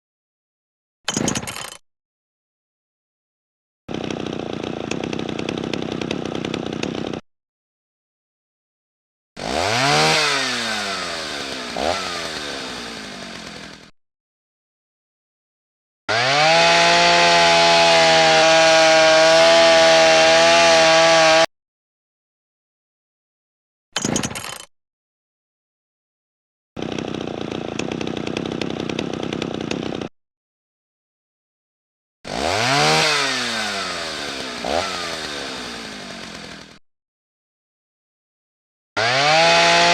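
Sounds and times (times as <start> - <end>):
power tool motor running: 3.9 - 7.2, 9.4 - 13.9, 26.8 - 30.1, 32.3 - 36.8, 39.0 - 39.9
motor revving and winding down: 9.4 - 13.9, 16.1 - 21.5, 32.3 - 36.8, 39.0 - 39.9
power tool buzzing: 9.4 - 13.9, 16.1 - 21.5, 32.3 - 36.8, 39.0 - 39.9.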